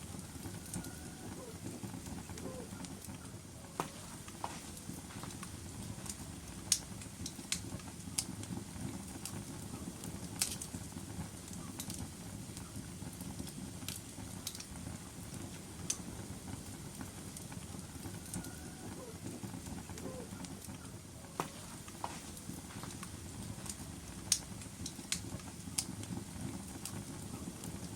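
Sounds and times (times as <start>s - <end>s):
burning logs crackling and popping: 0.0s - 27.9s
low rumble of flames: 0.0s - 27.9s.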